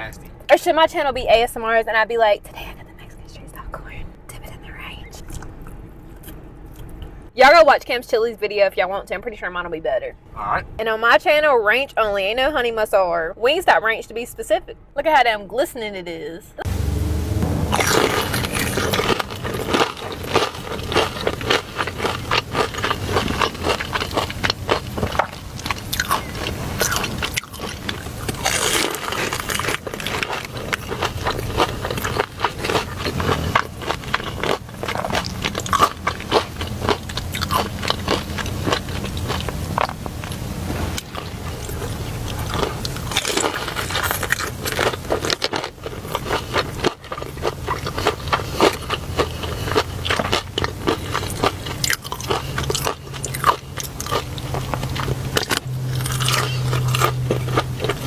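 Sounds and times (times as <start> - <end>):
person chewing crunchy food: 16.6 - 58.0.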